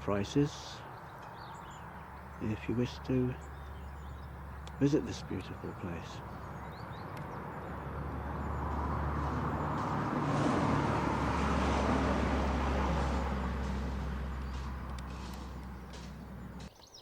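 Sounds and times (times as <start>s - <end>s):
vehicle driving past: 1.5s - 16.7s.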